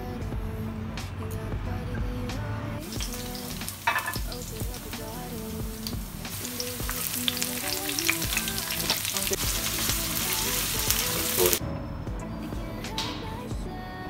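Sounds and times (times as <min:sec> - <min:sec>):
garlic sizzling in hot oil: 0:02.8 - 0:11.6
oil crackling and popping: 0:02.8 - 0:11.6.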